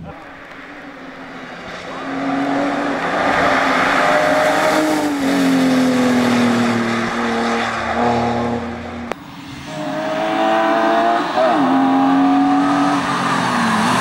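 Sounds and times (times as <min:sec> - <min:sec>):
car engine revving hard: 0:01.8 - 0:09.1, 0:09.7 - 0:14.0.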